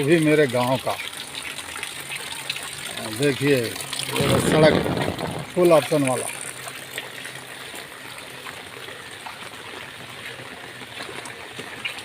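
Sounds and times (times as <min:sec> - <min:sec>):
faint drip-like ticks: 0:00.0 - 0:04.2, 0:06.0 - 0:12.0
water hiss on flooded road: 0:00.0 - 0:12.0.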